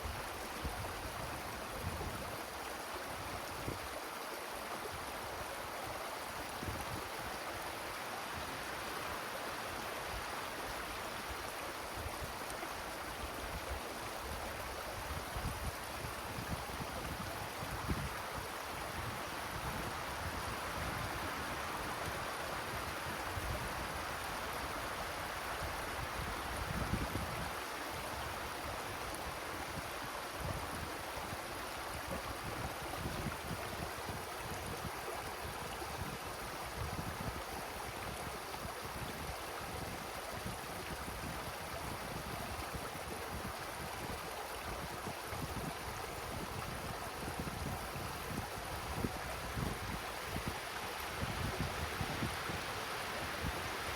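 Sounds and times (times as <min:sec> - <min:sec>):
wind through trees: 0:00.0 - 0:53.9
wind buffeting microphone: 0:38.6 - 0:53.9.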